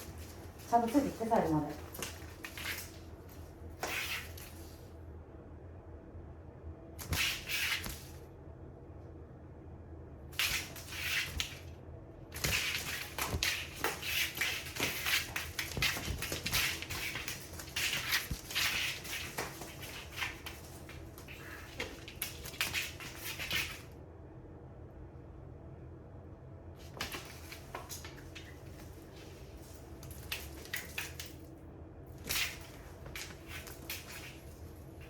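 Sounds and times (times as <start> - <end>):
cats scuffling and rustling: 0.0 - 5.0, 7.0 - 8.2, 10.3 - 11.7, 12.3 - 24.0, 26.8 - 35.0.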